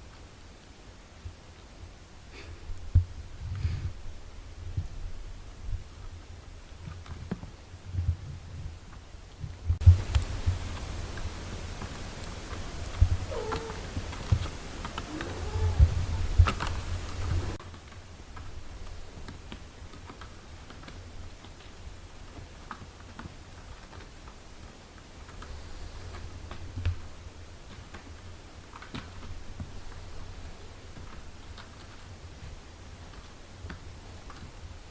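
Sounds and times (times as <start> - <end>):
soft clicks and rustles: 0.0 - 34.9
kittens mewing faintly: 13.0 - 14.3, 14.9 - 17.6.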